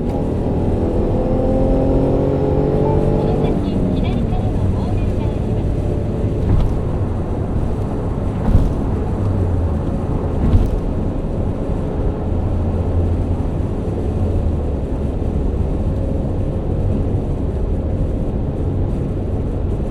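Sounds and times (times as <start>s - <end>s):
car engine running steadily: 0.0s - 19.9s
short knocks: 6.3s - 11.2s.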